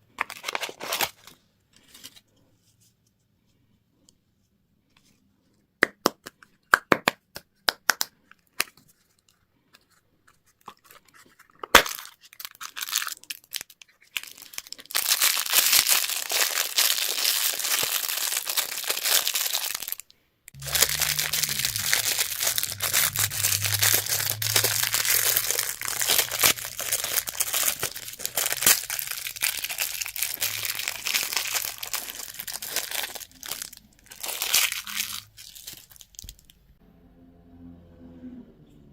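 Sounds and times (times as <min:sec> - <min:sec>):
plastic wrapper crinkling: 0:00.0 - 0:02.2, 0:10.6 - 0:36.6
low hum: 0:20.6 - 0:29.2, 0:36.8 - 0:38.9.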